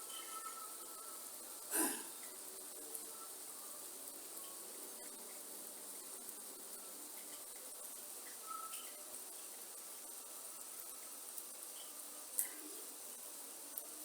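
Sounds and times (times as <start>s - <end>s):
faint bird chirps: 0.0s - 5.2s, 8.2s - 9.2s
insects: 0.0s - 14.0s
rain hiss: 0.0s - 14.0s.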